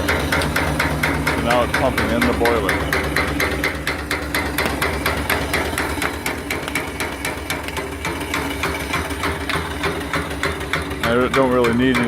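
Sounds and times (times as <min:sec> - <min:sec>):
feed pump knocking: 0:00.0 - 0:12.0
steam engine running: 0:00.0 - 0:12.0.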